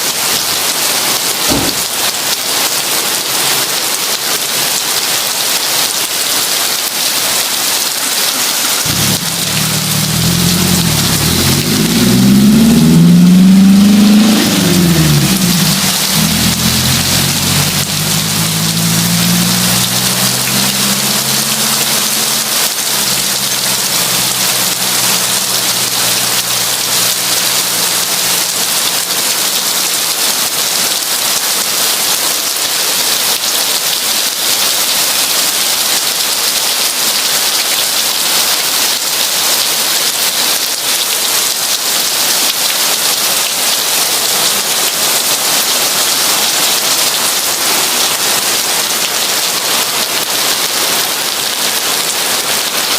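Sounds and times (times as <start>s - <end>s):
heavy rain downpour: 0.0s - 52.9s
low rumble: 8.9s - 27.4s.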